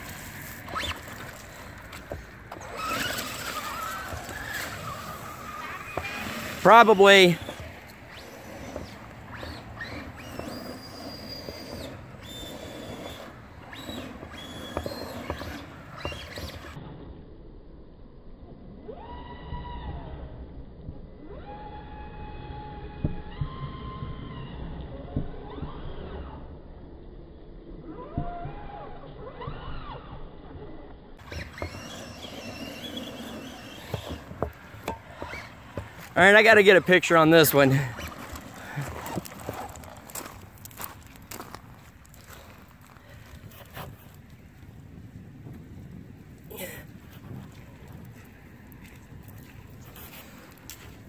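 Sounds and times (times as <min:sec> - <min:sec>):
electric motor whining: 0:00.0 - 0:17.0, 0:27.8 - 0:41.5
tires churning in mud: 0:00.0 - 0:17.4, 0:18.5 - 0:51.0.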